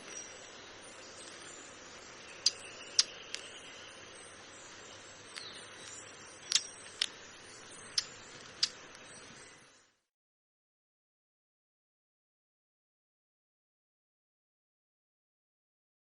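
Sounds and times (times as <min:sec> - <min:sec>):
low steady hiss: 0:00.0 - 0:10.1
bird chip calls: 0:00.9 - 0:09.6.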